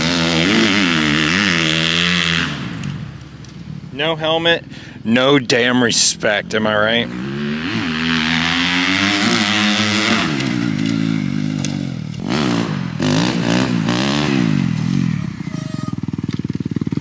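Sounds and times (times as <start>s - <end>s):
dirt bike engine revving: 0.0s - 3.2s, 6.8s - 17.0s.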